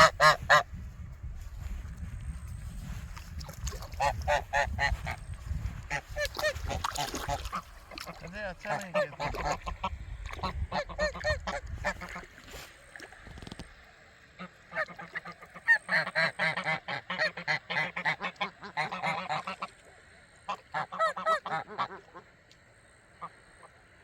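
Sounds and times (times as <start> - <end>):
waterfowl calling: 0.0 - 0.8, 3.3 - 13.6, 14.4 - 19.9, 20.5 - 22.3.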